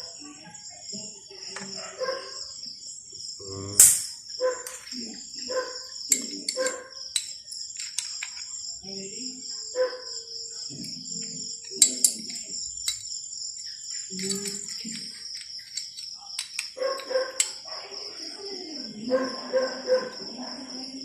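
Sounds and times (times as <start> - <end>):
crickets chirring: 0.0 - 21.0
low voices talking: 3.4 - 3.8.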